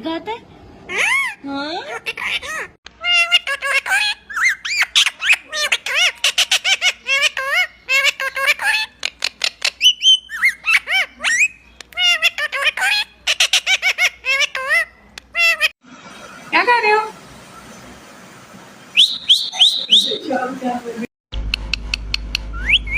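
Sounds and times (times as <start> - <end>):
parrot squawking and chirping: 0.9 - 15.8, 18.9 - 20.3
parrot whistle: 9.8 - 11.6, 18.9 - 20.3, 22.5 - 22.9.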